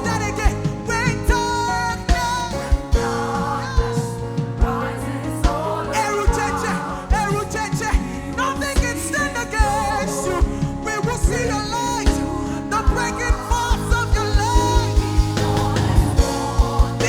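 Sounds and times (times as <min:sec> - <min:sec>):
drum beat: 0:00.0 - 0:17.0
person singing: 0:00.0 - 0:17.0
sustained chords: 0:11.5 - 0:17.0
quick drum hits: 0:12.9 - 0:17.0.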